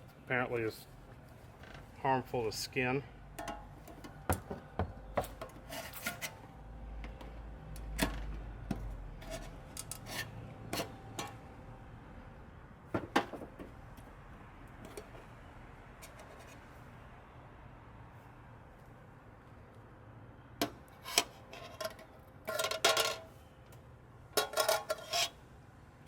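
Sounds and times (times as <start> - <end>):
handling clicks and taps on metal can: 3.4 - 4.5.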